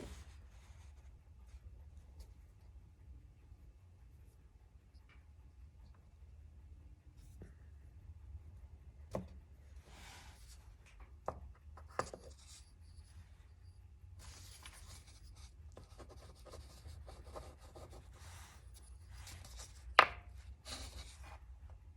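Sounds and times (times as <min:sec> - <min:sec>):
pen scratching on paper: 0:14.2 - 0:19.7.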